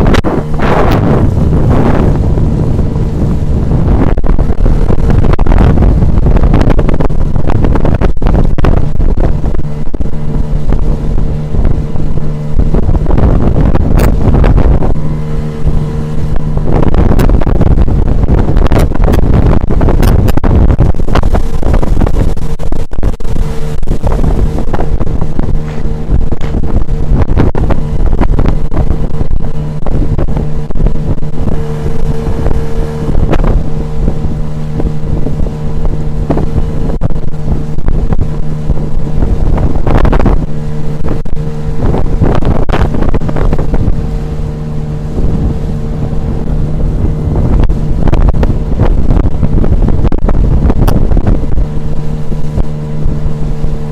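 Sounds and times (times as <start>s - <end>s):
outboard motor running: 0.0s - 53.9s
wind buffeting on microphone: 0.0s - 53.9s.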